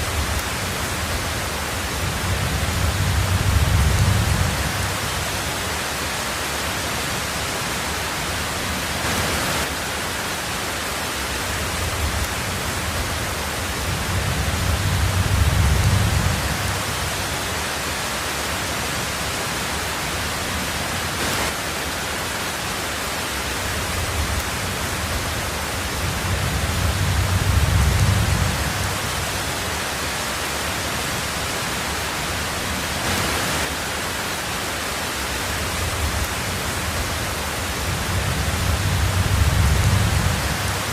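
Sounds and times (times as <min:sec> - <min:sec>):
low rumble of thunder: 0:00.0 - 0:05.6, 0:11.7 - 0:17.4, 0:23.8 - 0:29.5, 0:35.7 - 0:40.9
heavy rain on a tin roof: 0:00.0 - 0:40.9.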